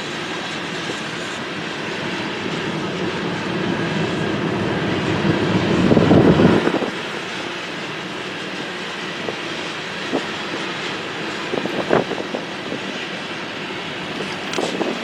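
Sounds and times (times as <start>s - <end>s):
train cars rumbling on rails: 0.0s - 7.7s.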